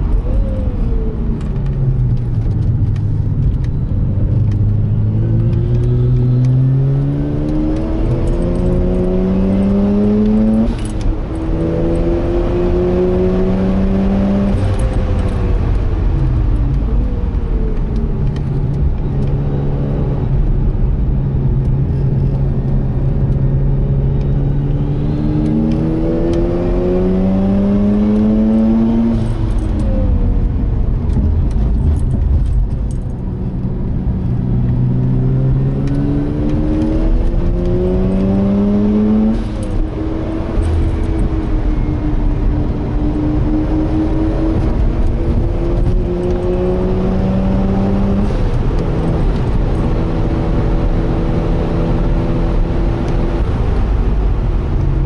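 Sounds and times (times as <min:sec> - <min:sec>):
rotary engine revving: 0:24.4 - 0:29.8, 0:34.4 - 0:53.6.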